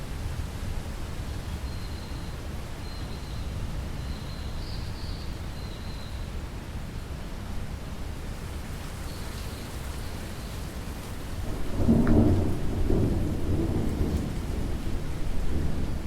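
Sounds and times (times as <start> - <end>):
steady rainfall: 0.0 - 16.0
thunder rumbling: 11.4 - 16.0.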